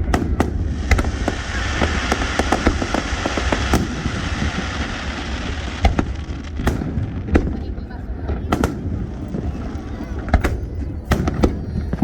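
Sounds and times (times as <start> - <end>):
fireworks booms: 0.0 - 12.0
fireworks popping and crackling: 0.0 - 12.0.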